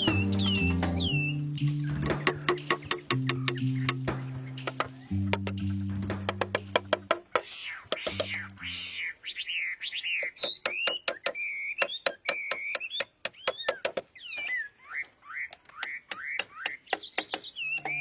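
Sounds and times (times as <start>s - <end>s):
sharp clicks: 1.6s - 8.6s
small animal chirping calls: 7.3s - 18.0s.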